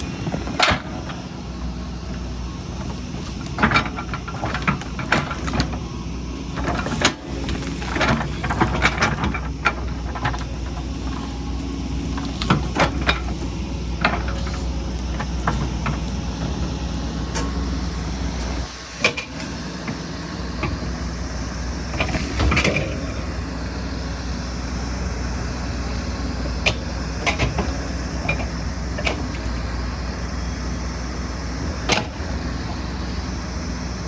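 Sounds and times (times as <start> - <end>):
excavator diesel engine running: 0.0 - 34.0
machine knocks and clanks: 2.8 - 5.9, 6.6 - 11.3, 12.1 - 17.7, 26.5 - 29.6.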